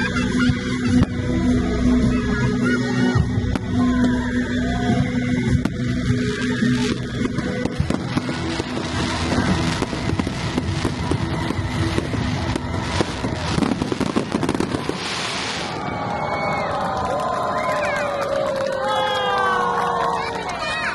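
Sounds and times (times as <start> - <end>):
fireworks bangs and crackles: 0.1 - 1.4, 2.9 - 19.3
fireworks hiss: 6.4 - 15.8.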